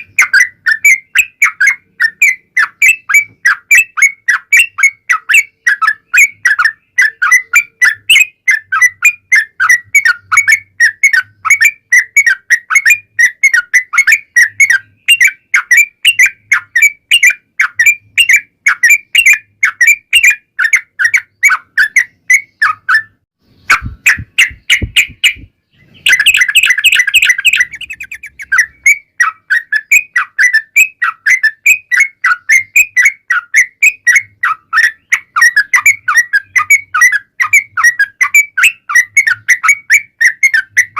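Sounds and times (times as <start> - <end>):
bird song of whistled chirps: 0.0 - 40.9
sharp bird clicks: 23.5 - 33.6.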